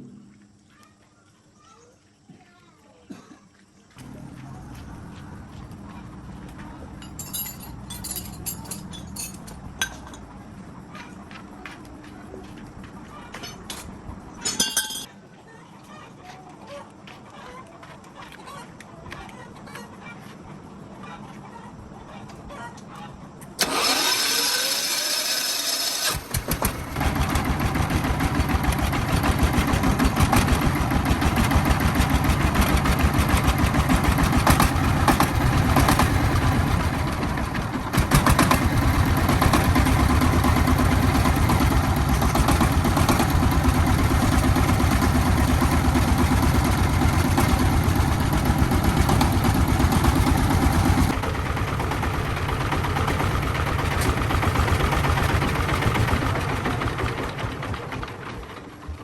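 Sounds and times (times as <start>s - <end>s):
tractor engine running: 4.0s - 15.1s, 23.5s - 59.0s.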